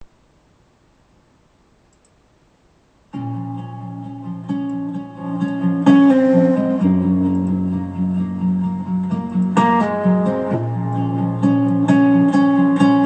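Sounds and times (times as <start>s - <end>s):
acoustic guitar strumming chords: 3.1s - 13.0s.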